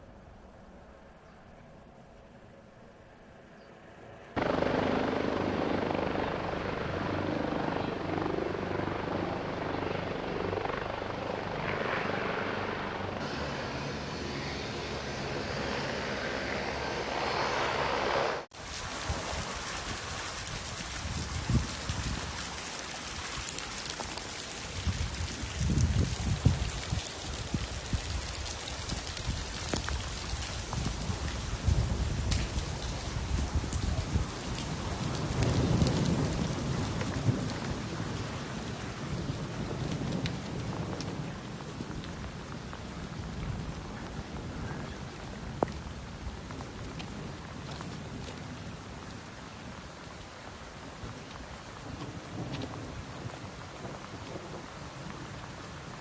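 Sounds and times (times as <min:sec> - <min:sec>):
helicopter rotor and engine: 0:04.4 - 0:18.5
heavy rain: 0:13.2 - 0:17.9, 0:18.5 - 0:56.0.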